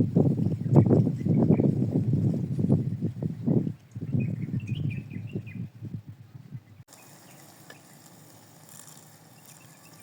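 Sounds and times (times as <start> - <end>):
bird chirping: 3.4 - 5.7, 9.3 - 10.0.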